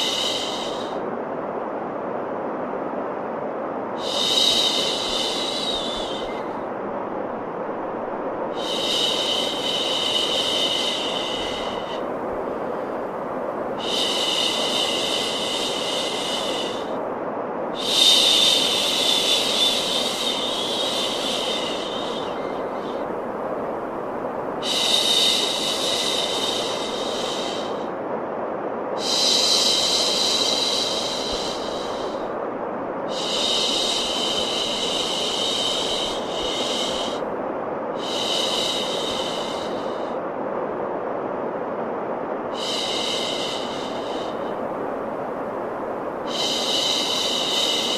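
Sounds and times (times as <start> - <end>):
white noise hiss: 0.0 - 47.9
higher bright hiss: 17.7 - 28.0, 33.0 - 37.3, 42.4 - 47.9.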